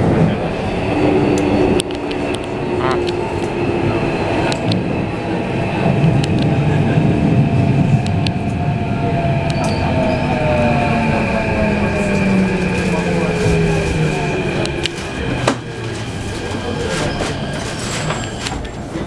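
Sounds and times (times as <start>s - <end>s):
wheel rumble on rail: 0.0s - 19.0s
rail joint clicks: 1.3s - 3.6s, 4.3s - 4.9s, 5.8s - 6.7s, 7.9s - 8.6s, 9.4s - 10.4s, 12.1s - 18.8s.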